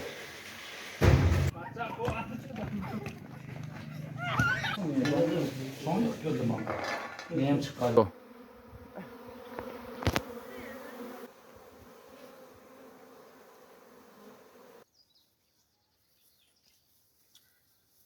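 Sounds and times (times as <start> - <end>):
bees buzzing: 2.9 - 14.8.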